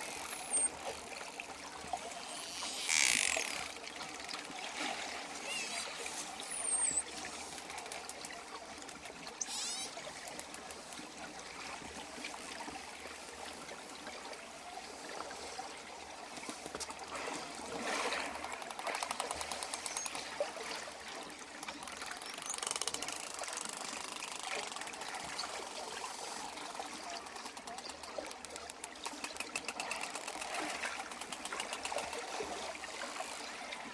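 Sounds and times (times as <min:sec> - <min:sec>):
dolphin click trains: 0:00.0 - 0:11.3, 0:17.6 - 0:33.7
underwater water wash: 0:00.0 - 0:33.9
dolphins whistling: 0:05.3 - 0:07.2, 0:09.4 - 0:10.0.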